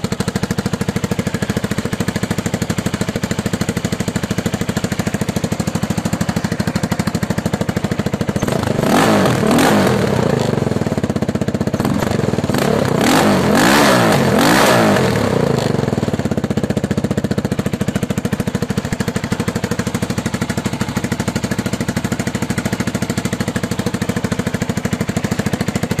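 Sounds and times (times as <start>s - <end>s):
engine idling and revving: 0.0s - 26.0s.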